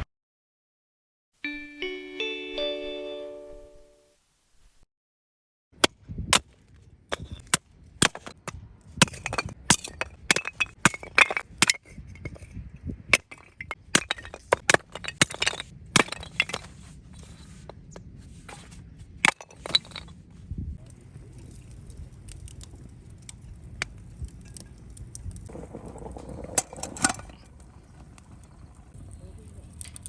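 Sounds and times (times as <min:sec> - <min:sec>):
hard objects clinking and knocking: 0:07.1 - 0:17.8, 0:19.2 - 0:20.2.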